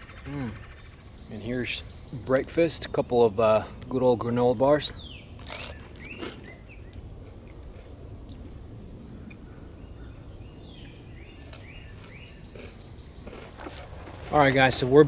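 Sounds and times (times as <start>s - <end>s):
low outdoor background noise: 0.0s - 15.0s
small birds chirping: 0.0s - 15.0s
sharp dry crunches: 5.4s - 6.6s.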